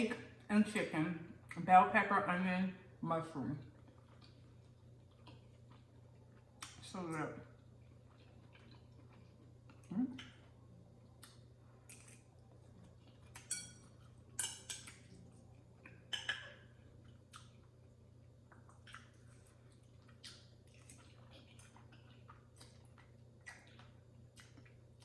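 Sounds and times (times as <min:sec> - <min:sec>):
wet chewing clicks: 0:03.6 - 0:06.9, 0:07.5 - 0:13.5, 0:14.7 - 0:25.0.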